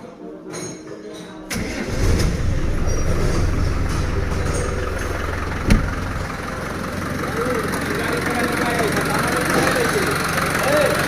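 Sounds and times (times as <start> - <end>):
diesel engine running: 1.5 - 11.0
sharp knock: 5.6 - 6.2.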